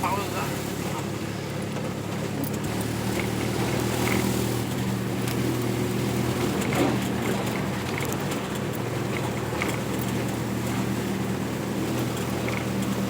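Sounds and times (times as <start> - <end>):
road noise hiss: 0.0 - 13.0
vehicle engine running: 0.0 - 13.0.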